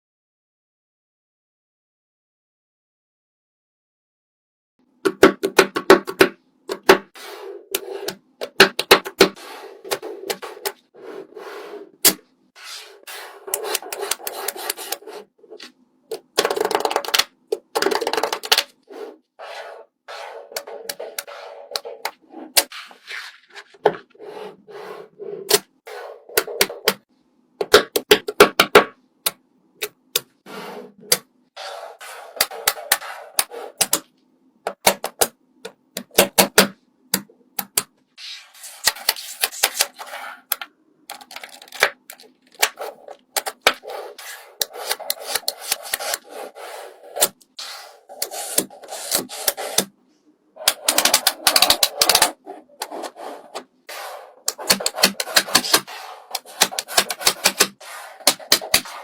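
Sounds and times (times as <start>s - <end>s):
rubbing and scraping: 7.1s - 8.2s, 9.2s - 17.1s, 17.7s - 26.9s, 30.4s - 33.8s, 38.2s - 40.6s, 41.2s - 59.0s.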